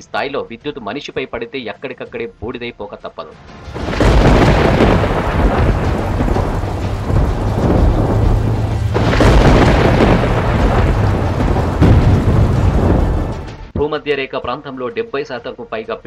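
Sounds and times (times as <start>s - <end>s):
heavy rain: 3.7s - 13.7s
sharp thunderclap crack: 3.7s - 13.8s
thunder rumbling: 3.7s - 13.8s.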